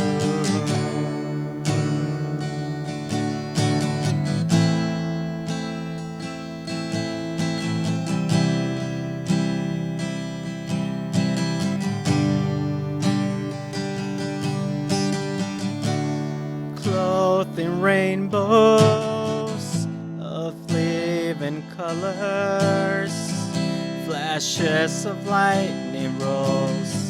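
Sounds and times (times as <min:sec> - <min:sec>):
person singing worship song: 0:00.0 - 0:03.6
acoustic guitar strumming chords: 0:00.0 - 0:27.0.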